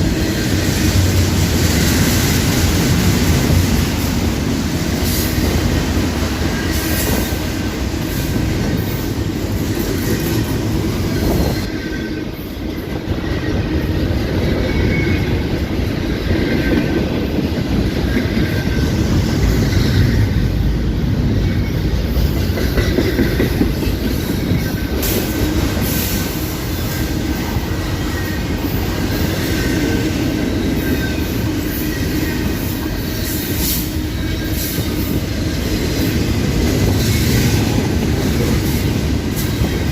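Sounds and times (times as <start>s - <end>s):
train cars rumbling past: 0.0s - 39.9s
faint wheel squeal: 13.2s - 15.4s.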